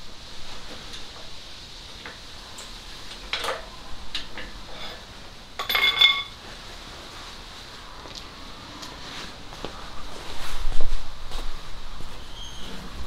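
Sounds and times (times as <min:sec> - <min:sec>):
metal tools clinking and knocking: 0:05.6 - 0:06.4
ringing metallic clatter: 0:05.6 - 0:06.4.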